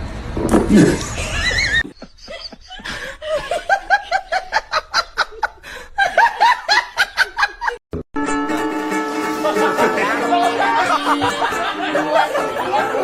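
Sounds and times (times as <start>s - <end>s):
music: 8.2s - 13.0s
high-pitched snickering laughter: 9.4s - 13.0s.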